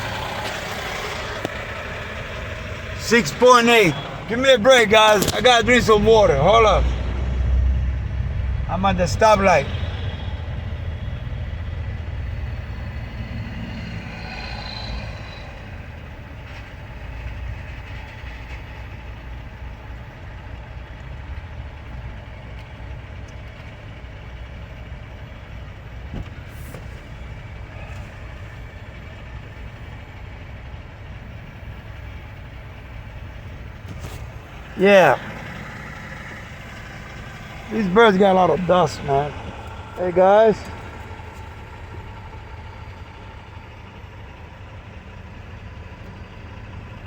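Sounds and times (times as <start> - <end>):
surrounding traffic: 0.0 - 47.0
vehicle engine idling: 0.0 - 47.0.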